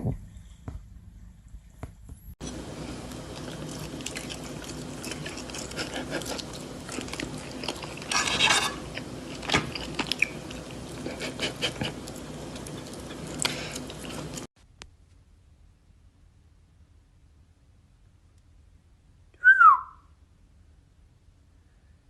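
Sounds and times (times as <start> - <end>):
low steady hum: 0.0 - 22.0
chewing crisp food: 2.4 - 14.5.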